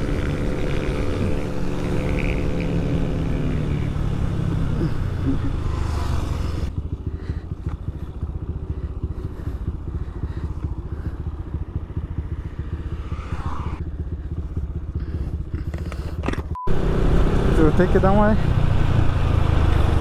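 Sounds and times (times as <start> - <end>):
motorcycle engine idling: 0.0 - 16.5.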